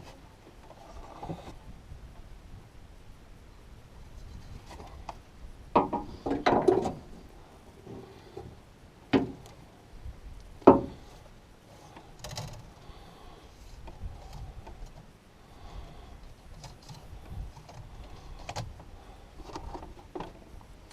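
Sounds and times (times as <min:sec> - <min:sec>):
sharp knocks: 0:05.8 - 0:06.9, 0:10.6 - 0:11.0
tools knocking and clattering: 0:05.8 - 0:07.0.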